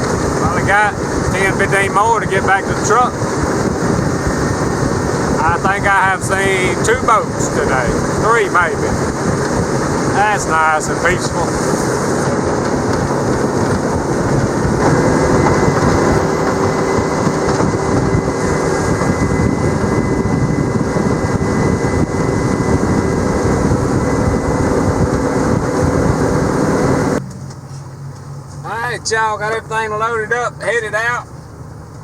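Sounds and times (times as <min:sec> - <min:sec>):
wind and water rushing: 0:00.0 - 0:27.2
outboard motor running: 0:00.0 - 0:32.0.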